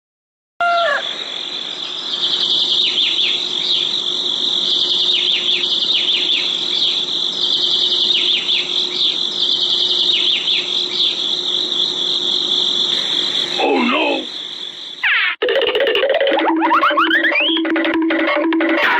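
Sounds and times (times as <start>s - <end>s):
high-pitched insect chorus: 0.8s - 15.0s.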